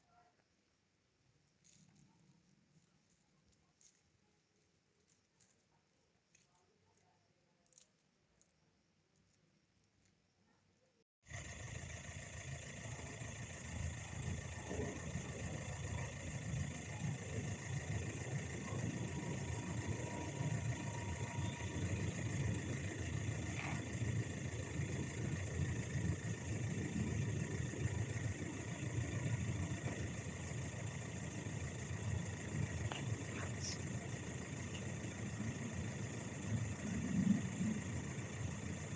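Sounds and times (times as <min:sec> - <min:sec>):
faint steady whine: 0:00.0 - 0:38.9
low engine rumble: 0:11.3 - 0:38.9.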